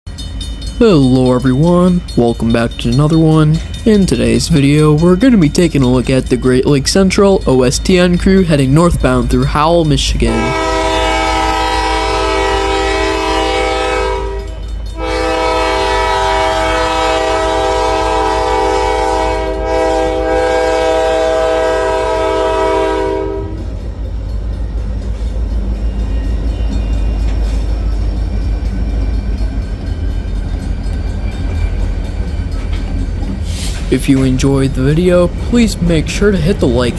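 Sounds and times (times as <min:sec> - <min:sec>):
train rumbling past: 0:00.1 - 0:36.9
locomotive air horn blasts: 0:10.2 - 0:23.7.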